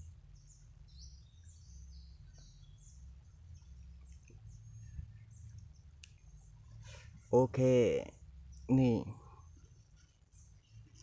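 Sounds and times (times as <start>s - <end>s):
low steady rumble: 0.0s - 7.4s
small birds chirping: 0.0s - 11.0s.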